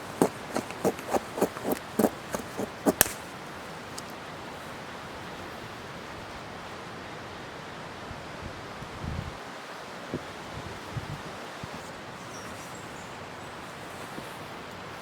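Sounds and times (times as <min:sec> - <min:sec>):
knife scraping wood: 0:00.0 - 0:04.1.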